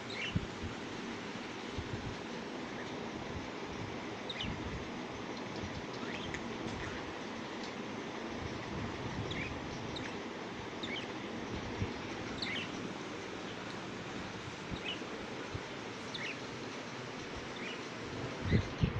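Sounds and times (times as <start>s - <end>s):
steady background hiss: 0.0s - 18.9s
budgerigars chirping: 0.1s - 0.4s, 4.3s - 4.6s, 9.3s - 10.2s, 10.8s - 11.1s, 12.3s - 12.8s, 14.8s - 15.1s, 16.1s - 16.4s, 17.6s - 18.6s.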